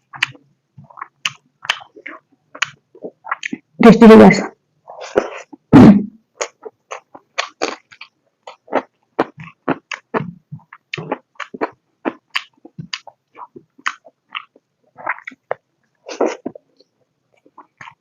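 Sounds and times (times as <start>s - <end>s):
wet chewing and lip smacks: 0.1s - 3.6s, 6.4s - 15.6s.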